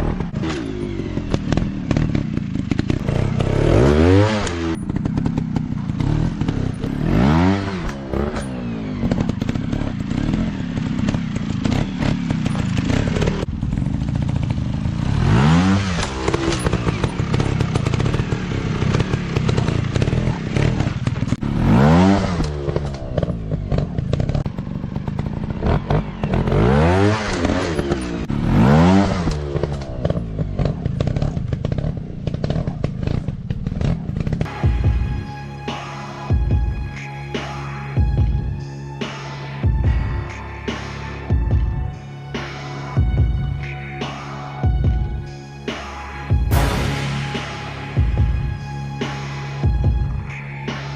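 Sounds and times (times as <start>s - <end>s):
dirt bike engines revving: 0.0s - 34.6s
bikes clattering over rough ground: 29.2s - 34.5s.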